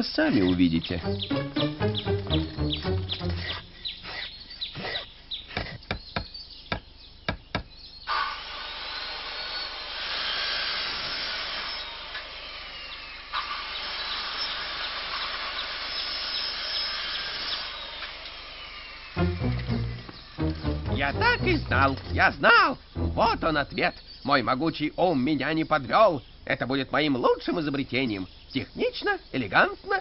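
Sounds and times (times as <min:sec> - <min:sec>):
sharp taps and knocks: 0:05.5 - 0:07.7.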